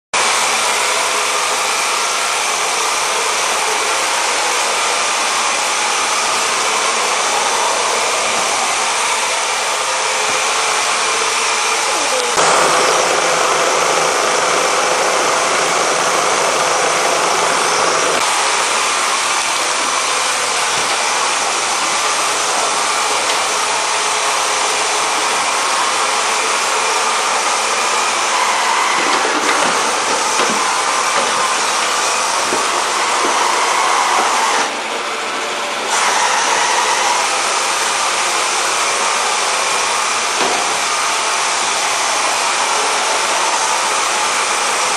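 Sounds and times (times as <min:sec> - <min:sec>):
robot vacuum whirring: 0:06.3 - 0:24.0, 0:24.7 - 0:34.8.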